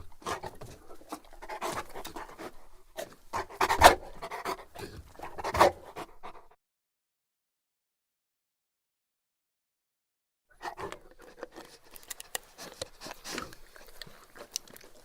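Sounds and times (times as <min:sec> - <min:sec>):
dog panting heavily: 0:00.0 - 0:06.6, 0:10.6 - 0:14.5.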